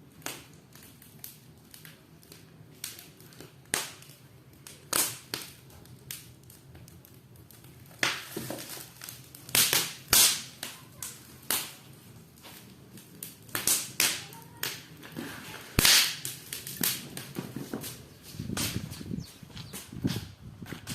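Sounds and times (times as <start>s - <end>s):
firewood crackling and popping: 0.0s - 20.9s.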